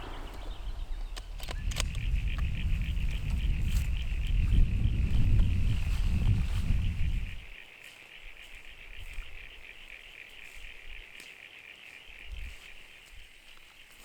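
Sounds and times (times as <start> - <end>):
wind rumble on microphone: 0.0 - 7.6, 12.1 - 13.3
insects and frogs calling: 0.0 - 14.0.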